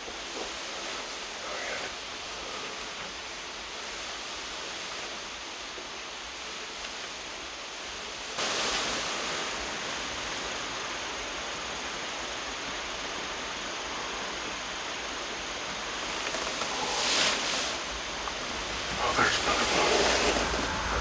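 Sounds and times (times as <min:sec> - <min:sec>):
steady rushing outdoor noise: 0:15.9 - 0:21.0.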